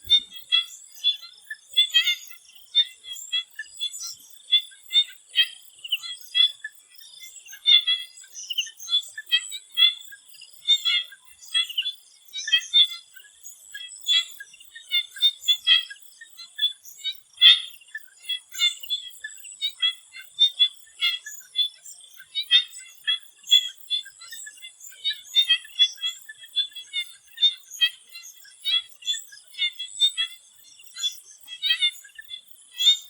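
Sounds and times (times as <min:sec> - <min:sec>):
frogs chirping: 0:00.0 - 0:33.0.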